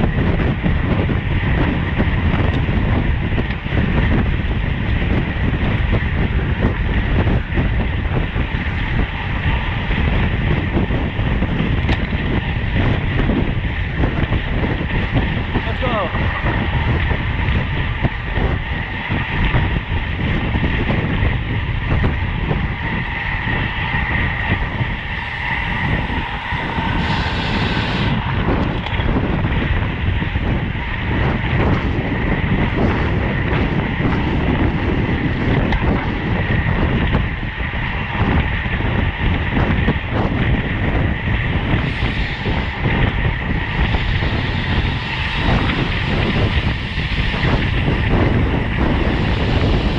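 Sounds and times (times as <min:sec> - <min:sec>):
bike tyre and drivetrain noise: 0:00.0 - 0:49.9
wind rushing over microphone: 0:00.0 - 0:49.9.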